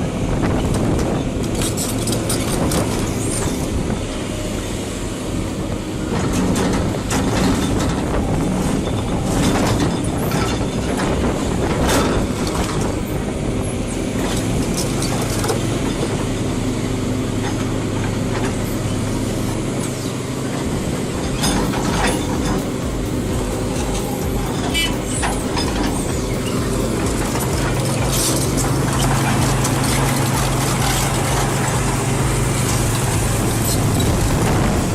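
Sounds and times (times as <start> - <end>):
heavy equipment engine running: 0.0 - 34.9
metallic clanks and knocks: 21.2 - 34.9.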